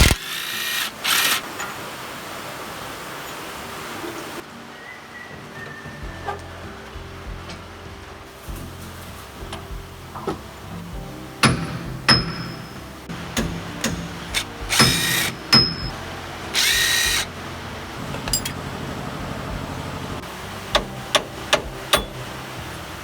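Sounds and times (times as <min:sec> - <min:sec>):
power tool bursts: 0:00.0 - 0:01.8, 0:11.5 - 0:17.4
metallic clicks and knocks: 0:11.4 - 0:16.0, 0:20.7 - 0:22.2.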